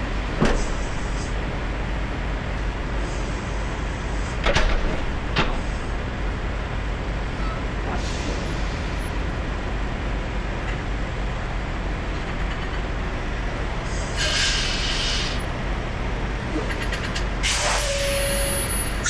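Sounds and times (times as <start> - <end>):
air brakes releasing: 7.4 - 9.0, 13.9 - 15.6, 16.6 - 19.0
diesel engine idling: 13.2 - 19.0
air hiss: 14.2 - 15.4, 17.4 - 19.0.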